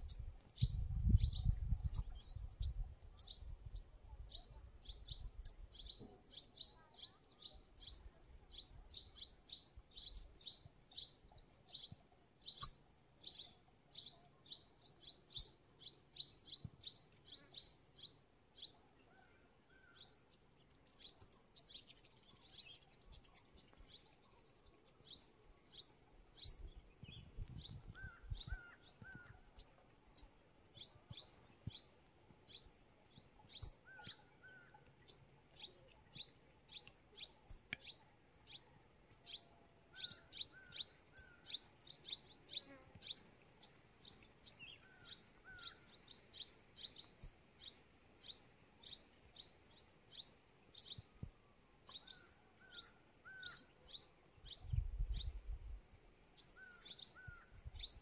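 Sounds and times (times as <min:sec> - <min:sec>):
bird chirping high thin chirps: 0:00.0 - 0:03.6, 0:21.0 - 0:24.2, 0:32.6 - 0:34.3, 0:50.2 - 0:51.1.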